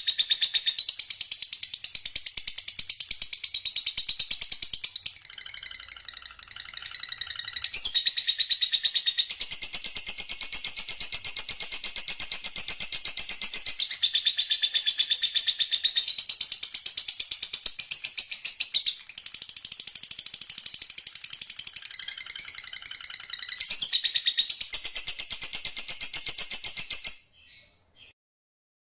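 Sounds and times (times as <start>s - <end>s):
songbird trilling: 1.9s - 10.0s.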